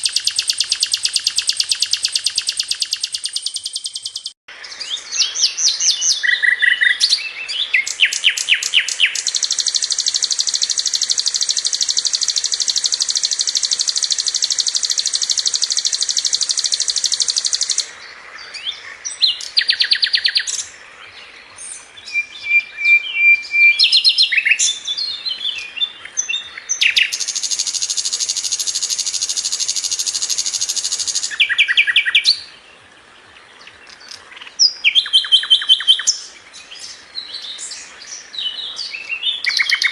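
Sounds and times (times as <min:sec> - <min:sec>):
very high bird trills: 0:00.0 - 0:04.4, 0:07.8 - 0:17.9
flycatcher singing: 0:00.0 - 0:18.0, 0:18.6 - 0:20.8, 0:21.5 - 0:32.6, 0:33.6 - 0:39.9.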